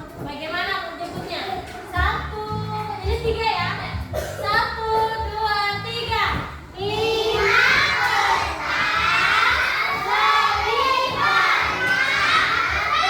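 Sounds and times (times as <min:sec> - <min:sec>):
children shouting and chanting: 0:06.8 - 0:13.0.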